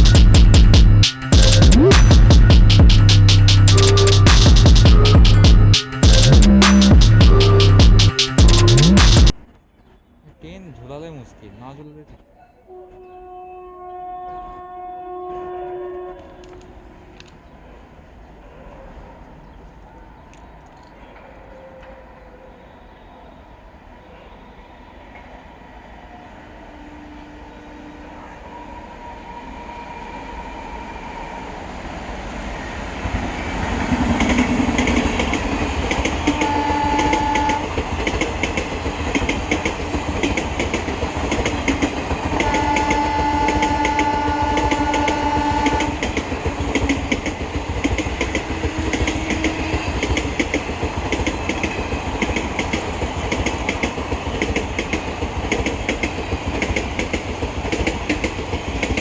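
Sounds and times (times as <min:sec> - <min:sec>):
train horn: 0:12.6 - 0:17.4, 0:26.2 - 0:31.6, 0:33.4 - 0:38.2, 0:41.4 - 0:47.2, 0:48.0 - 0:50.5
train wheels clattering: 0:33.0 - 0:59.0.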